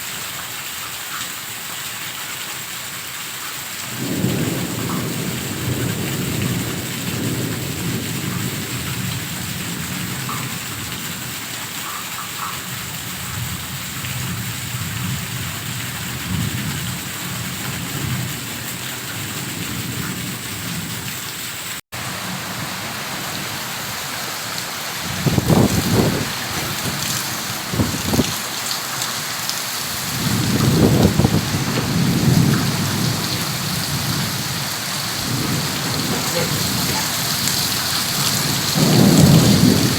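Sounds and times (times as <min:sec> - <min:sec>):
heavy rain pouring: 0:00.0 - 0:39.9
deep thunder rumbles: 0:03.9 - 0:11.4, 0:25.0 - 0:28.8, 0:29.8 - 0:39.9.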